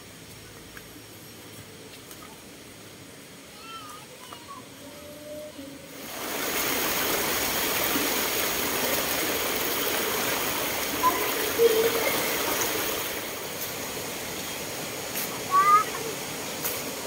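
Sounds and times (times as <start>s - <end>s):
water rushing over rocks: 5.9s - 17.0s.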